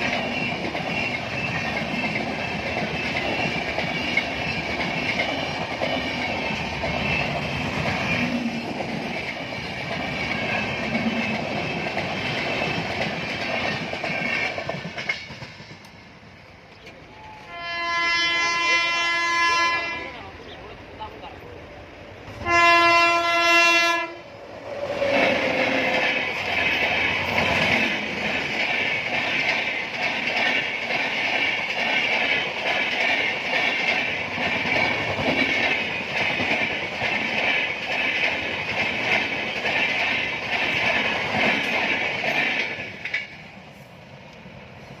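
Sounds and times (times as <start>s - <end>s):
train clattering over rail joints: 0.0s - 17.5s, 24.7s - 45.0s
train horn: 17.2s - 20.2s, 22.3s - 24.3s.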